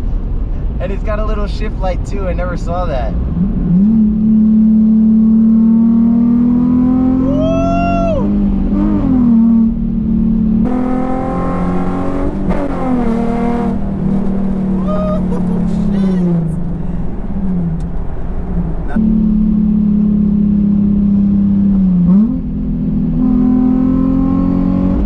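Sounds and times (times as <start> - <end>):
car engine accelerating: 3.1 - 25.0.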